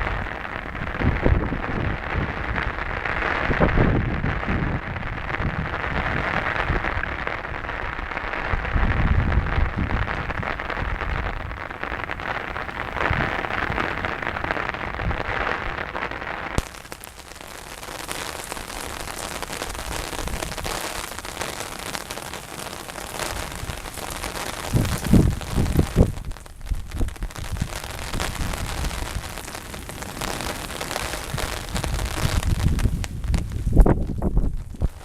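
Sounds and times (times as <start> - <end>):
low rumbling gusts: 0.0 - 16.2, 23.3 - 35.0
heavy rain hissing: 0.0 - 35.0.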